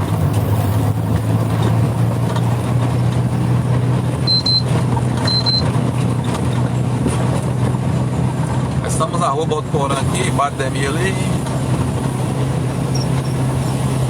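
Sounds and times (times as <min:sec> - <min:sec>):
vehicle engine and road noise: 0:00.0 - 0:14.0
short high-pitched beeps: 0:04.3 - 0:05.7.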